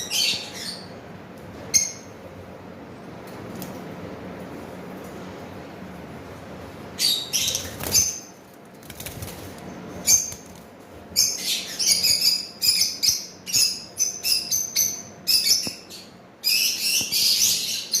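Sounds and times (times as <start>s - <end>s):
parrots chirping: 0.0s - 1.0s, 7.0s - 8.4s, 9.8s - 10.5s, 11.1s - 18.0s.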